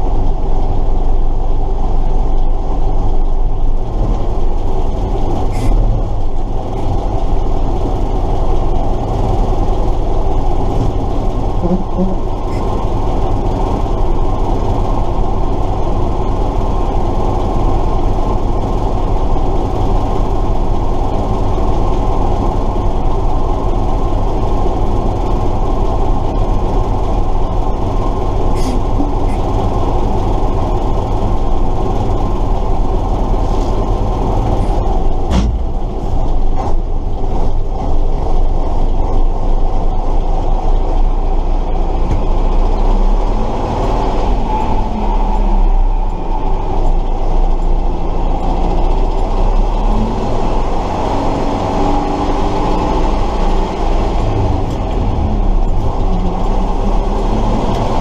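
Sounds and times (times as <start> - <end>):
diesel truck engine running: 0.0 - 58.0
sharp knocks: 35.3 - 35.9.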